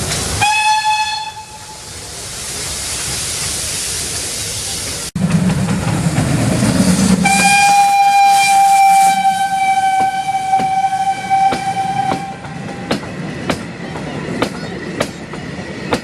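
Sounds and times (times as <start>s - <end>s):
train running noise: 0.0s - 16.0s
steam locomotive whistle: 0.4s - 1.9s, 6.9s - 12.9s
wheels clacking over rail joints: 4.9s - 7.7s, 9.8s - 16.0s.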